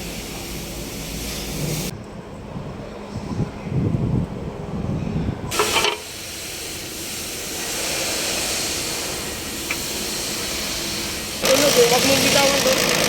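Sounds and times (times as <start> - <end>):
steady hiss: 0.0 - 1.9, 5.5 - 12.8.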